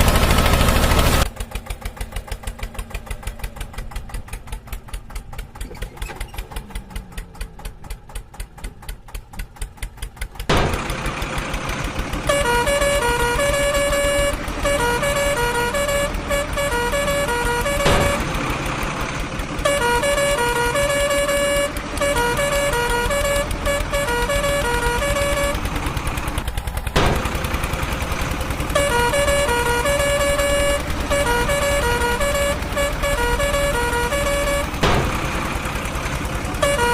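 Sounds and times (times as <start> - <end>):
engine rumble: 0.0 - 36.9
musical vehicle horn tune: 12.1 - 18.4, 19.6 - 26.4, 28.5 - 35.5, 36.4 - 36.9.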